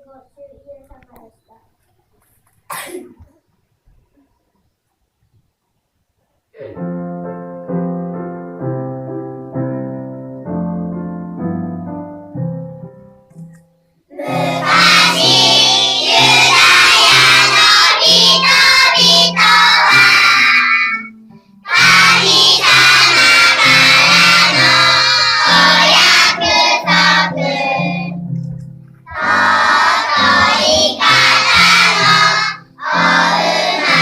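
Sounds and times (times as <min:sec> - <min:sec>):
piano playing: 0:06.7 - 0:34.0
children singing loudly: 0:14.1 - 0:21.0, 0:21.7 - 0:28.0, 0:29.1 - 0:34.0.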